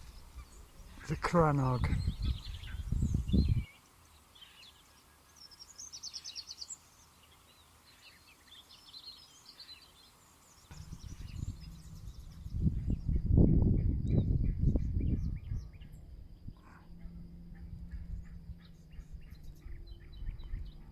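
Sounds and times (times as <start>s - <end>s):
low rumbling buffeting noise: 0.0s - 3.7s, 10.7s - 20.9s
small birds singing: 0.0s - 20.9s.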